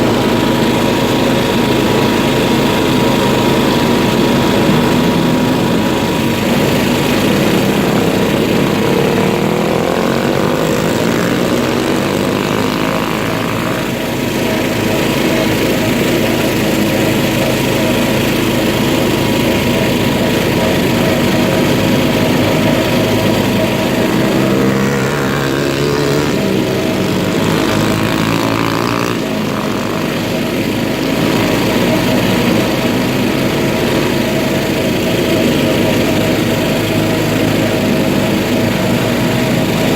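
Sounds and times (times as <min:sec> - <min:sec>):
off-road vehicle engine revving: 0:00.0 - 0:39.9.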